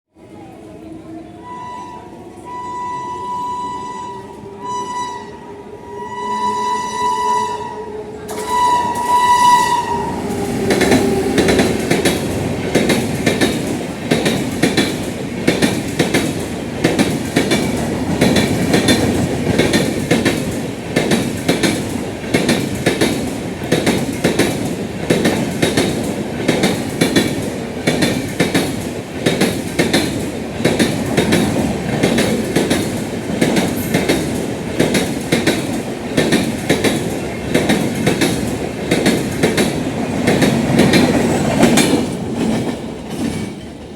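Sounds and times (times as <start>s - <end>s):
train horn blasts: 1.4s - 12.0s
train wheels clattering over rail joints: 10.2s - 43.9s.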